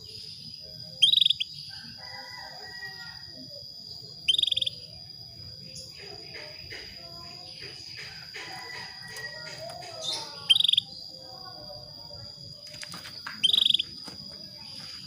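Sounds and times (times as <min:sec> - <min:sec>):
canary pulsed call: 0:00.9 - 0:01.5, 0:04.2 - 0:04.8, 0:08.0 - 0:11.0, 0:13.4 - 0:14.0.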